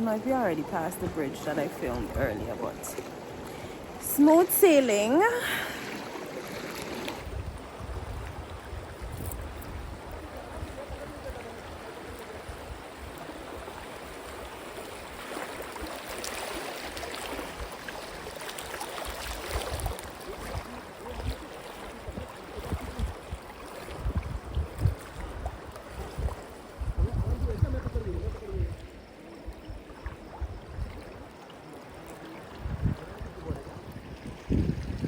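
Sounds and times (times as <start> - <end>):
river water rushing and splashing: 0.0 - 27.0.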